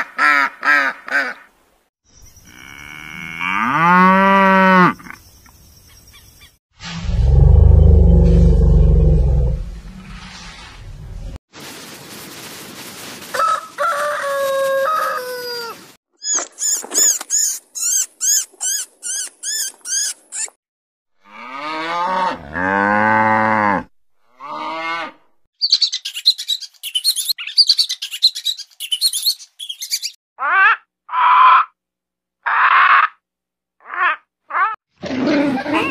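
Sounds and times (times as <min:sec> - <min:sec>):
cow mooing: 0:02.5 - 0:05.1, 0:21.2 - 0:25.3
rooster crowing: 0:13.3 - 0:15.8
rapid high-pitched squeaks: 0:16.2 - 0:20.6.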